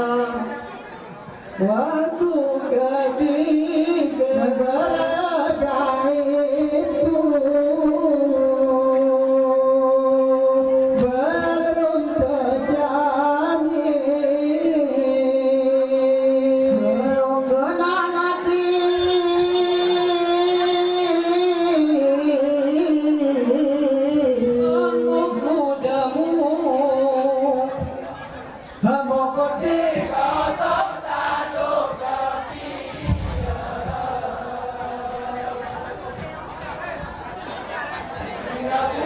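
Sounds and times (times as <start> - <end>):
men chanting in unison: 1.6 - 27.9, 28.9 - 36.4, 37.9 - 39.0.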